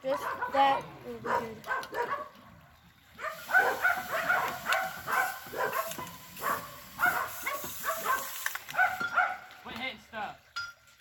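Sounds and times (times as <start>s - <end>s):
dog barking and yipping: 0.1s - 2.3s, 3.2s - 9.5s.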